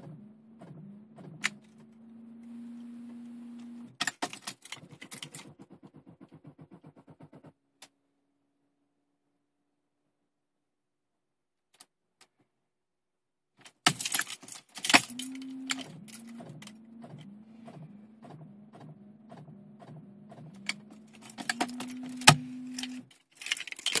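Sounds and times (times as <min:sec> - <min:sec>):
engine cranking by starter: 0:00.0 - 0:07.8, 0:14.0 - 0:24.0
keys jangling in ignition: 0:13.9 - 0:16.8, 0:20.6 - 0:24.0.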